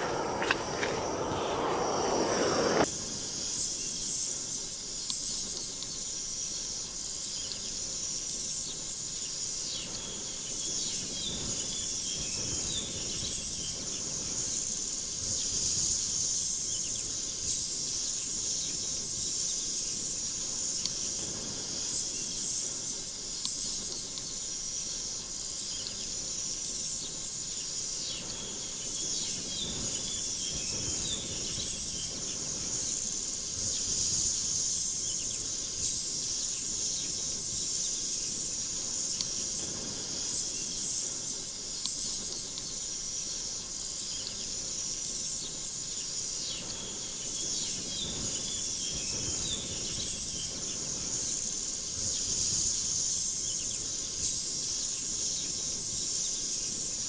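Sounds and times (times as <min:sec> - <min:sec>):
insects chirping: 0:00.0 - 0:02.9, 0:18.1 - 0:57.0.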